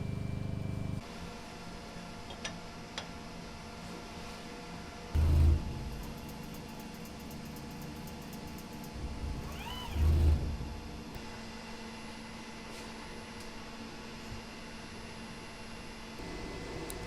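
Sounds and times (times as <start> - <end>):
short squeak: 9.4 - 10.4.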